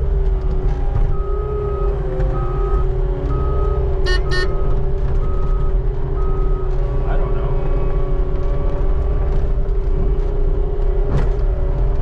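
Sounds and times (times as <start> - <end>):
backup alarm beeping: 3.4 - 4.7
short high squeaks: 4.1 - 4.6.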